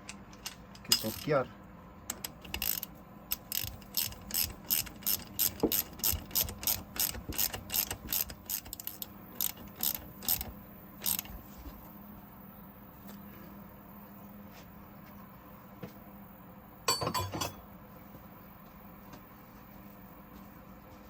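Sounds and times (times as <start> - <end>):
ratchet wrench clicking: 0.0 - 1.4, 2.1 - 11.3.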